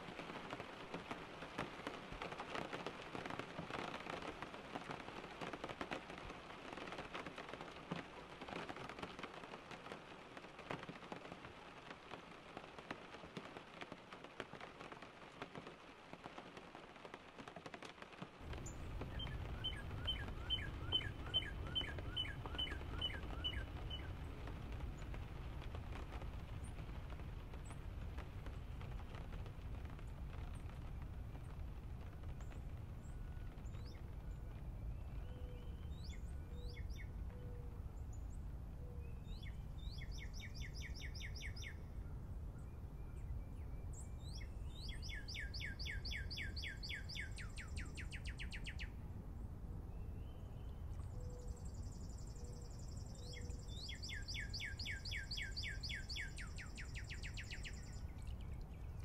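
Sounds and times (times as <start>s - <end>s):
rain pattering: 0.0s - 59.0s
bird singing a trill: 19.2s - 24.1s, 44.1s - 48.8s, 51.2s - 59.0s.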